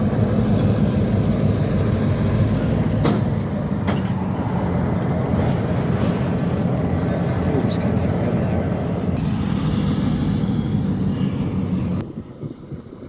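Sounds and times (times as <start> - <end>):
diesel locomotive engine rumbling: 0.0 - 13.0.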